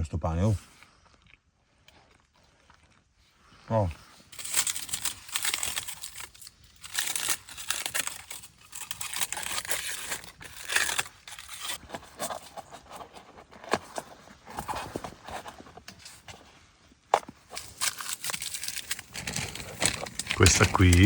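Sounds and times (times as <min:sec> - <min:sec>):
sharp crackles: 0:04.3 - 0:11.8, 0:17.4 - 0:21.0
crinkly material rustling: 0:04.3 - 0:21.0.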